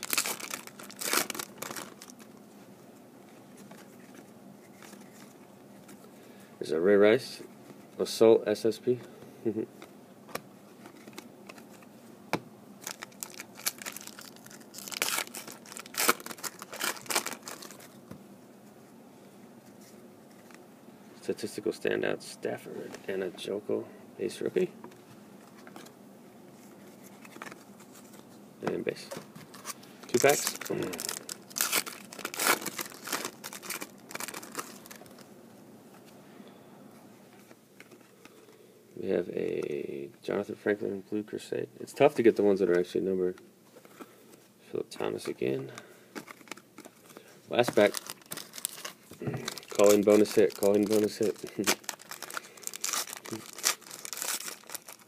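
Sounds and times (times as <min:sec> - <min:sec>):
foil wrapper crinkling and tearing: 0:00.0 - 0:02.3, 0:12.8 - 0:18.0, 0:29.4 - 0:35.2, 0:46.2 - 0:55.0.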